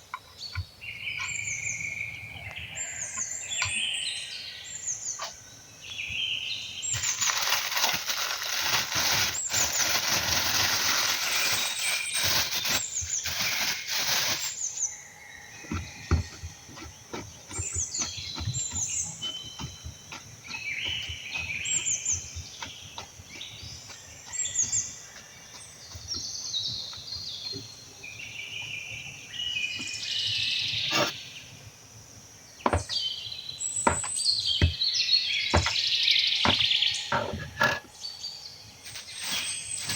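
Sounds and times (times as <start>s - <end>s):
birds chirping: 0.0s - 39.9s
loud hiss: 6.9s - 14.8s, 38.9s - 39.9s.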